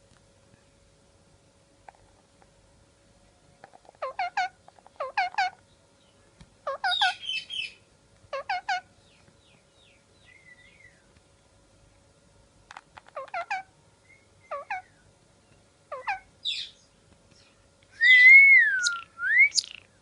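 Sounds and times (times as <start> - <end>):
parrot calling: 4.0 - 5.6, 6.6 - 8.9, 13.2 - 15.0, 15.9 - 16.8, 18.0 - 20.0
parrot harsh chatter: 15.9 - 16.3.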